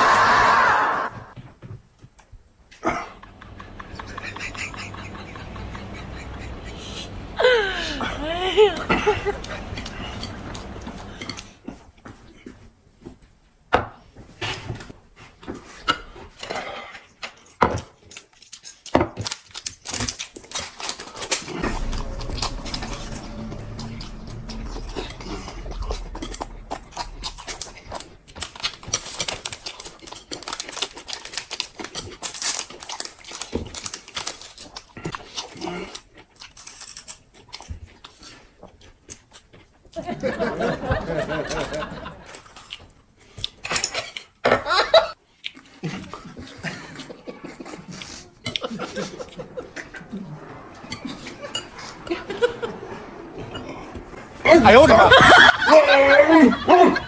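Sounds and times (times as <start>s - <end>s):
eating sounds: 5.0s - 11.8s, 19.4s - 39.7s, 45.3s - 54.4s
chopsticks and dishes clinking: 8.8s - 11.5s
smacking and chewing: 24.5s - 40.0s, 45.2s - 52.0s.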